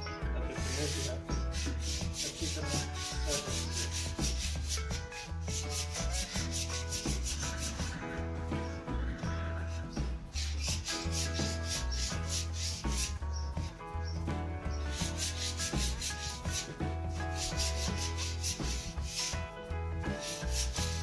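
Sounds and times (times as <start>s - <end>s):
sandpaper rubbing on wood: 0.6s - 7.9s, 10.3s - 13.2s, 14.8s - 19.4s, 20.2s - 21.0s.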